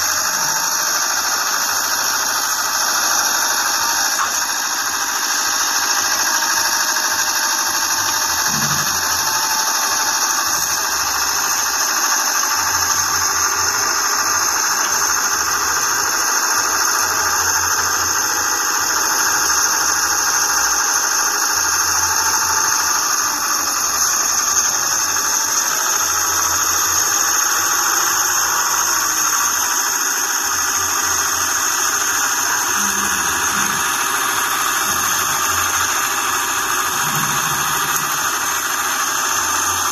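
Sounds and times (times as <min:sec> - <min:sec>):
excavator machinery whine and hiss: 0:00.0 - 0:39.9.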